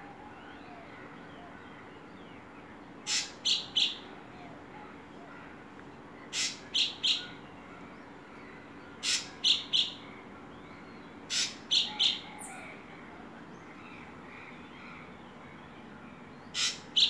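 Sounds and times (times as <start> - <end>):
bird calling harsh notes: 3.0 - 4.2, 6.3 - 7.4, 8.9 - 10.1, 11.3 - 12.8, 16.5 - 17.0.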